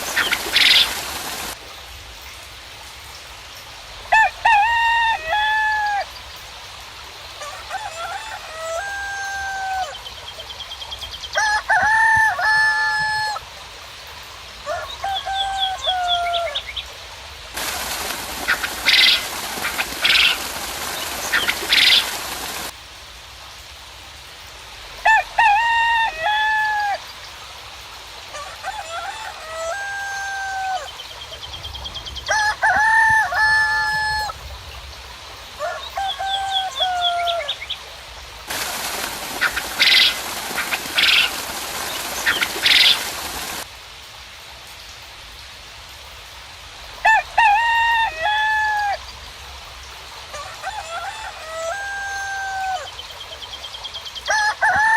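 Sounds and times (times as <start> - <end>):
small birds trilling: 0.0 - 1.6, 17.6 - 22.7, 38.5 - 43.6
rain hissing: 0.0 - 53.7
roosters crowing: 4.1 - 6.1, 7.4 - 10.1, 11.3 - 13.4, 14.6 - 16.6, 17.6 - 22.7, 25.0 - 27.0, 28.3 - 31.0, 32.2 - 34.4, 35.6 - 37.6, 38.5 - 43.7, 47.0 - 49.0, 50.3 - 53.0, 54.2 - 54.9.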